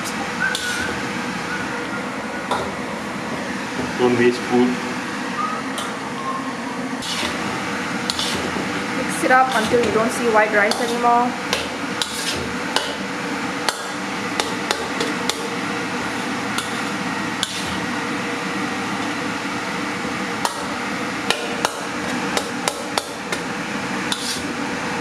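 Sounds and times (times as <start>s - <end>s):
steady background hum: 0.0s - 25.0s.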